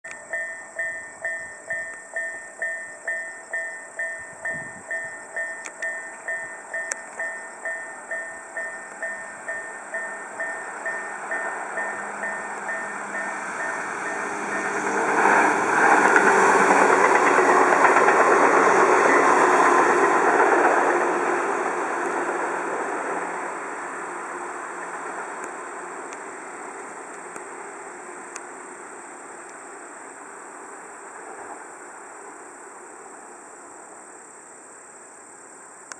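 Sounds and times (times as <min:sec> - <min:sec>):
level-crossing warning bell: 0:00.0 - 0:20.0
train wheels on rails: 0:00.1 - 0:34.3.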